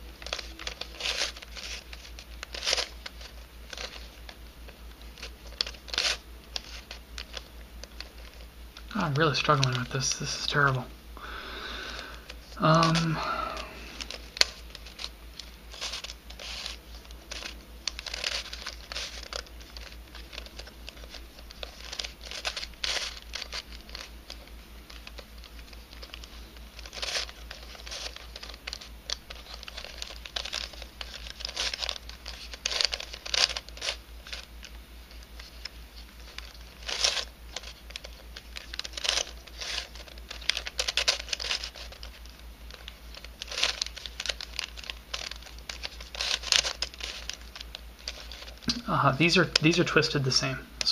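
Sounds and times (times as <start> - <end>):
puzzle cube pieces clicking: 0.2 - 4.1, 15.7 - 34.7, 35.4 - 48.6.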